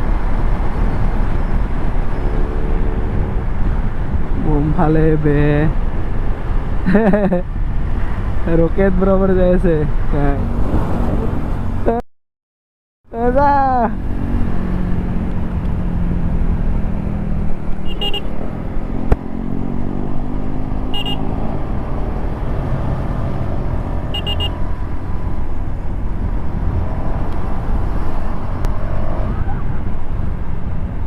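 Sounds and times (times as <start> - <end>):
motorcycle engine revving: 2.1 - 3.6, 14.0 - 24.5
short high beeps: 20.9 - 21.2, 24.2 - 24.6.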